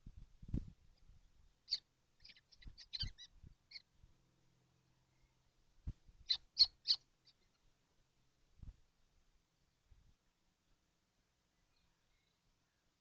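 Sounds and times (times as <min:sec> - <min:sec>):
young kestrels calling: 0:01.6 - 0:03.9, 0:06.2 - 0:07.7.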